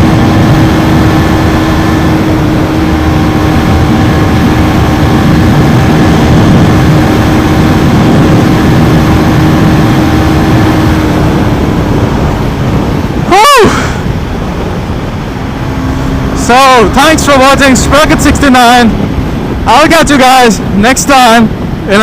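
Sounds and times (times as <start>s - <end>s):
motorcycle engine at speed: 0.0s - 22.0s
sharp pitch sweep: 0.0s - 22.0s
wind rushing on microphone: 0.0s - 22.0s.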